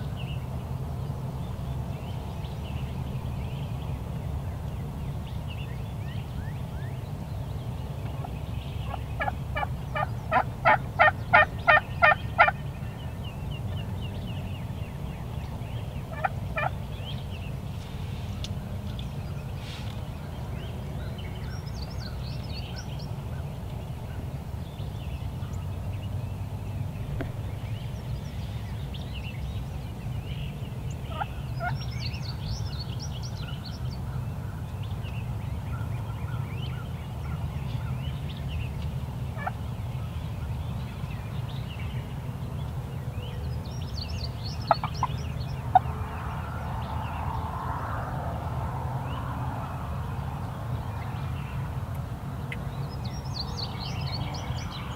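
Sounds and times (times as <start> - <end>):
steady low rumble: 0.0 - 31.7
turkey gobbling: 8.9 - 12.6, 16.1 - 16.7, 44.7 - 45.1.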